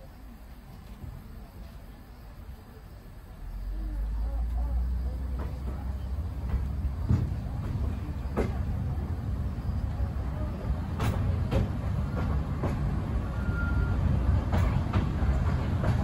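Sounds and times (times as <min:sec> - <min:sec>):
train rumbling: 0:00.0 - 0:16.0
wheels clacking on track: 0:03.7 - 0:16.0.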